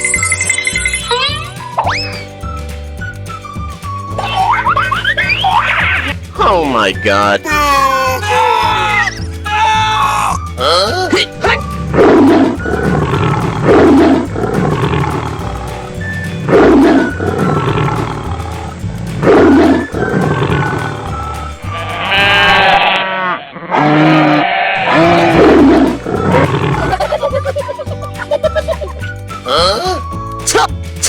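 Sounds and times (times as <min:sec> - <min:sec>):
background music with bass line: 0:00.0 - 0:22.9, 0:24.8 - 0:31.0
animal roars: 0:11.9 - 0:15.8, 0:16.5 - 0:19.9, 0:21.7 - 0:27.0
long pitched animal call: 0:21.7 - 0:26.7.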